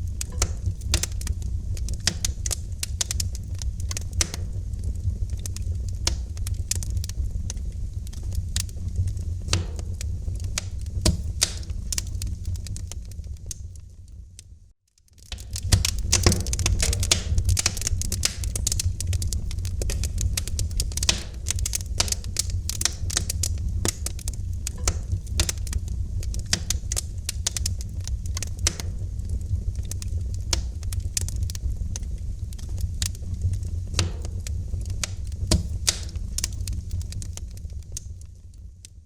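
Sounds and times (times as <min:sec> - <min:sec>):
fire pops and snaps: 0:00.0 - 0:39.0
low rumble of burning fire: 0:00.0 - 0:39.0.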